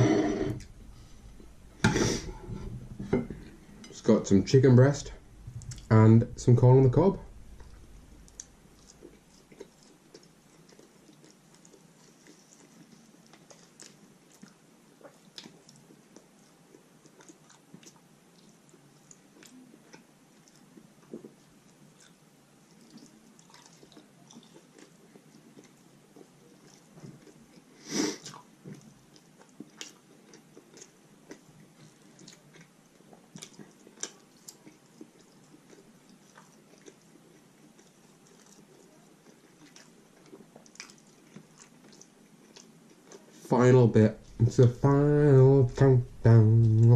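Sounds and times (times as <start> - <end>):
person chewing food: 5.2 - 6.0, 7.3 - 43.5.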